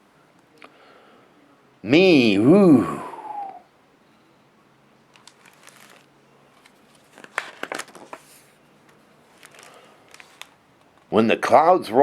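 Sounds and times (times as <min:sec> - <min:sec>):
book pages rustling: 0:05.1 - 0:11.1.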